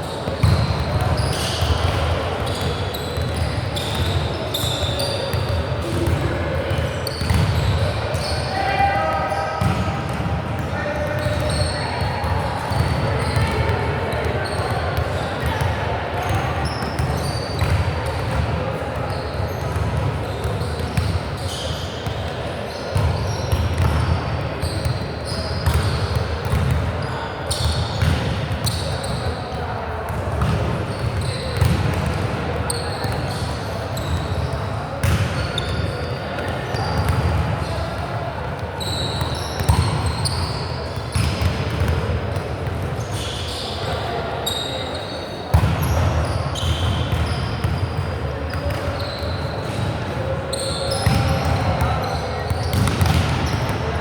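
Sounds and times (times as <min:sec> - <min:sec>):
sneakers squeaking on floor: 0:00.0 - 0:38.1, 0:38.8 - 0:42.0, 0:42.7 - 0:54.0
murmur of players and spectators: 0:00.0 - 0:54.0
volleyball struck and bouncing: 0:52.4 - 0:53.8.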